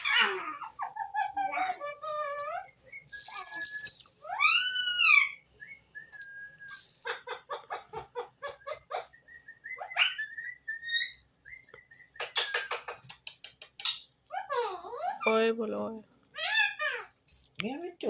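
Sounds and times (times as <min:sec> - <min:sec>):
parrot chattering: 0:00.0 - 0:05.4
parrot whistling and calling: 0:00.0 - 0:13.0.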